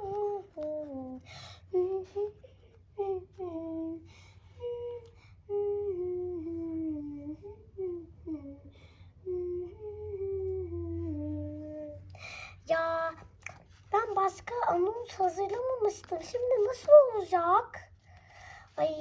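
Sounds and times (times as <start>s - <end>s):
child humming a tune: 0.0s - 13.3s
steady low hum: 0.0s - 16.6s.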